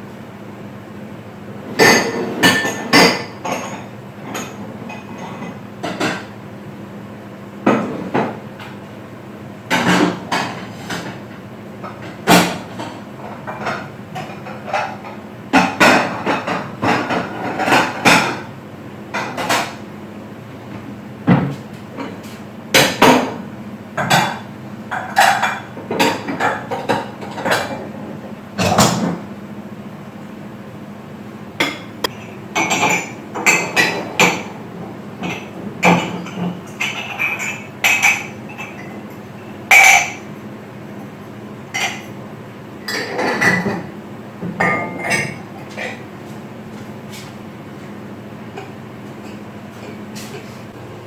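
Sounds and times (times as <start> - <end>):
steady low hum: 0.0 - 51.0
kitchen utensils and dishes clinking: 35.2 - 39.0, 42.9 - 43.8, 44.6 - 46.0.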